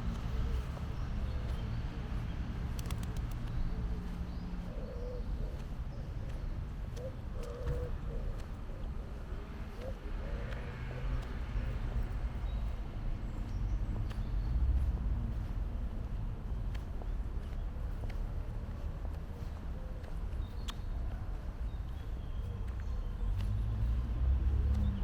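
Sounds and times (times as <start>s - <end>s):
pigeon cooing: 7.0s - 10.6s.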